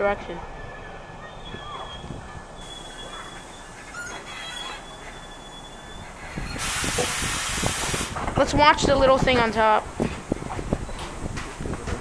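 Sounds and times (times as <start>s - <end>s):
high-pitched train whine: 0.0s - 7.7s
loud air hiss: 6.6s - 8.2s.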